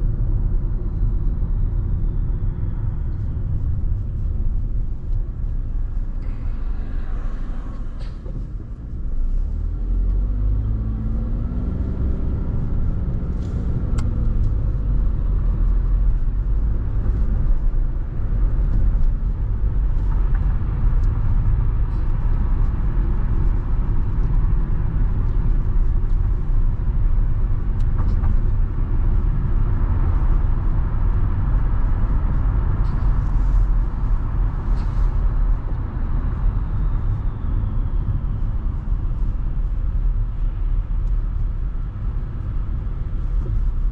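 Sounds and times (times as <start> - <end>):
car road and engine noise: 0.0 - 43.9.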